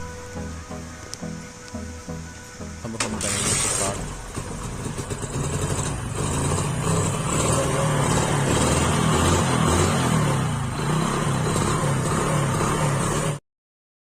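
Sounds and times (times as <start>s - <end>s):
motorcycle engine running: 2.9s - 13.4s.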